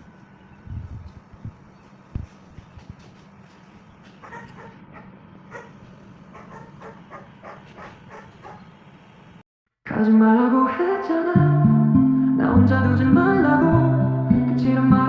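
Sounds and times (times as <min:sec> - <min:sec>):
steady low hum: 0:00.0 - 0:09.4
dog whimpering: 0:04.2 - 0:05.8, 0:06.4 - 0:08.6.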